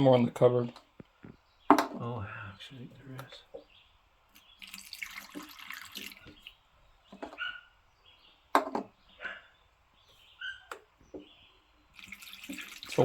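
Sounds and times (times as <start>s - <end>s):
water pouring into battery: 4.4s - 6.6s, 11.9s - 13.0s.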